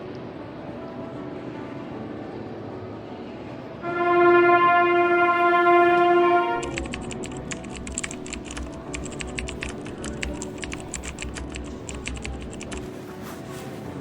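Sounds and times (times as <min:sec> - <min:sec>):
train horn: 0:03.8 - 0:06.8
rapid irregular clicking: 0:06.6 - 0:12.9.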